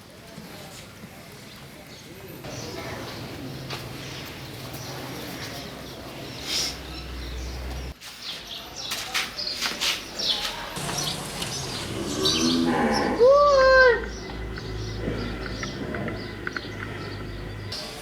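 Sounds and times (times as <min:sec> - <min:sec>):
small birds chirping: 0:01.4 - 0:18.0
livestock animal calling: 0:10.8 - 0:17.7.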